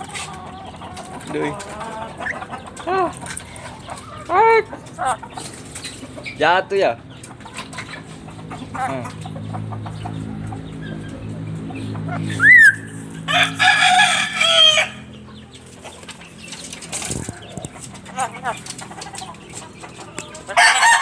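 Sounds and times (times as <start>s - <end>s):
sharp rising whistle: 12.3s - 12.9s.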